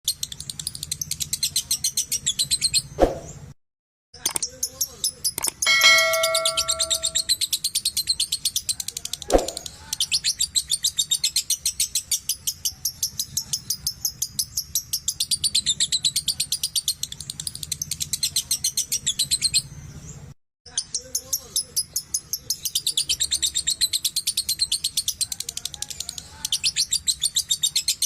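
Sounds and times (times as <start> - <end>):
chime: 5.7 - 7.3.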